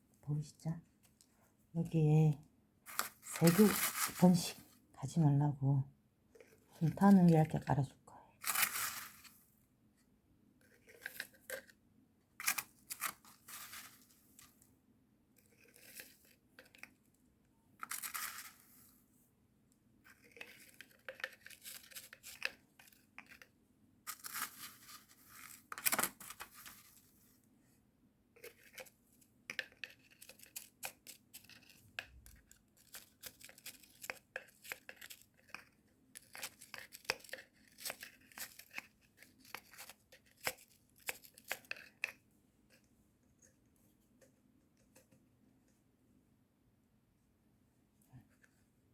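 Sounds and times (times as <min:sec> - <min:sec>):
dry grainy rustling: 0:02.9 - 0:04.8, 0:08.4 - 0:09.5, 0:12.4 - 0:14.7.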